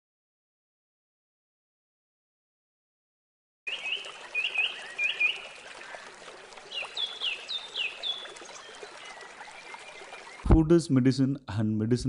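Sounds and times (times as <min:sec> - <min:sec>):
birds chirping: 0:03.7 - 0:10.7.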